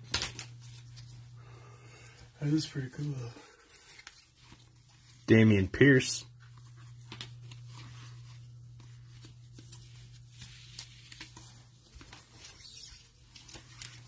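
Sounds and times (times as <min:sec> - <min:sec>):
trading cards being flipped: 0:00.0 - 0:01.2, 0:06.6 - 0:14.0
steady low hum: 0:00.0 - 0:14.0.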